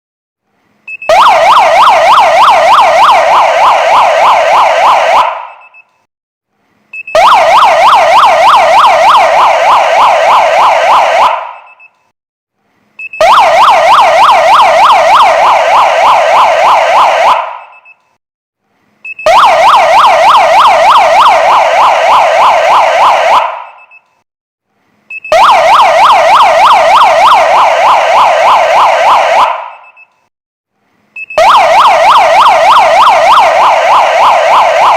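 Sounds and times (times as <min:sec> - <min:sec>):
electronic siren wailing: 0:01.0 - 0:05.7, 0:07.1 - 0:11.8, 0:13.2 - 0:17.9, 0:19.2 - 0:24.0, 0:25.2 - 0:30.0, 0:31.2 - 0:34.9.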